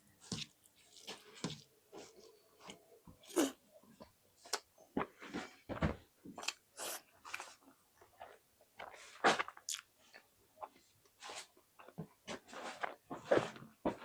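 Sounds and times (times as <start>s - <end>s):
wet chewing sounds: 0.2s - 3.6s.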